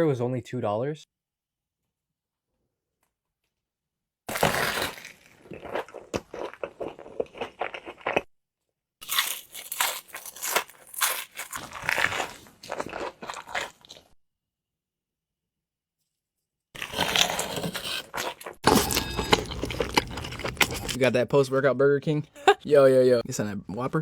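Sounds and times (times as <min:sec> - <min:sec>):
crunchy bite: 0:04.3 - 0:08.3, 0:09.0 - 0:14.1, 0:16.8 - 0:21.0
wet crackly chewing: 0:04.3 - 0:08.3, 0:09.0 - 0:14.2, 0:16.8 - 0:21.0.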